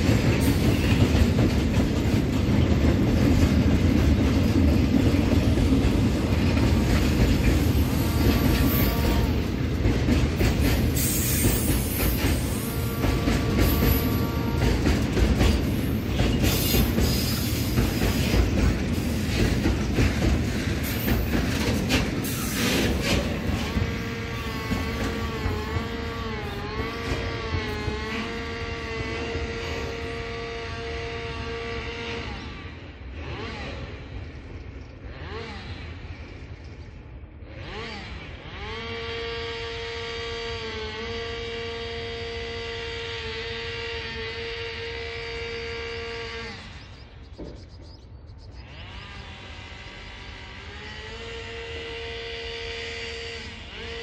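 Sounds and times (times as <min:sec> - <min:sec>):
train wheels rumbling and clattering: 0:00.0 - 0:54.0.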